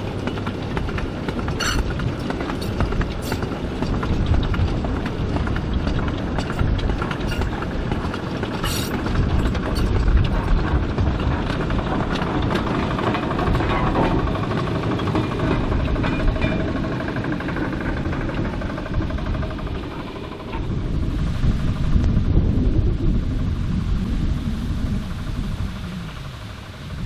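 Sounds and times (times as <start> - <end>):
wagons knocking and clicking: 0.0 - 20.7
train rumbling past: 0.0 - 27.0.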